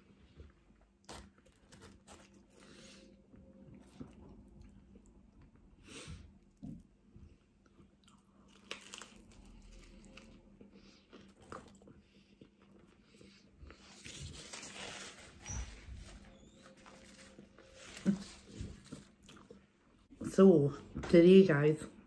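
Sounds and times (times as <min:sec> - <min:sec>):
chewing crusty bread: 0:00.0 - 0:20.0
paper napkin rustling: 0:13.7 - 0:19.2.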